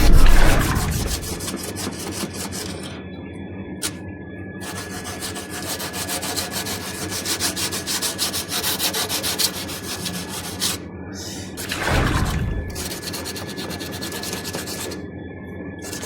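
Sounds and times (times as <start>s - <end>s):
rapid scraping on metal coil: 0.0s - 2.9s.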